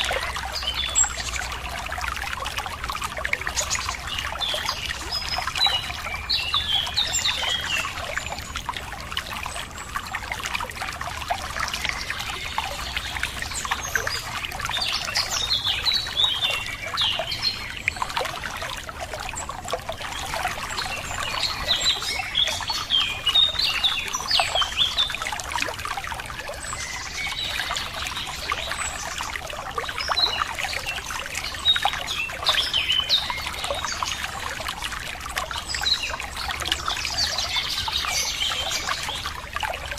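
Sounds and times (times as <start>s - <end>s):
water trickling over stones: 0.0s - 39.9s
small birds chirping: 11.2s - 25.6s, 26.4s - 39.9s.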